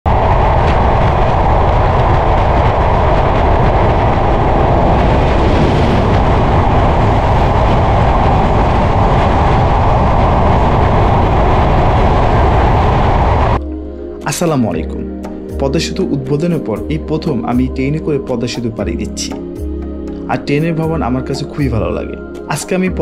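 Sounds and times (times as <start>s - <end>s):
wind buffeting microphone: 0.0s - 13.6s
train wheels rushing on rail: 0.1s - 13.6s.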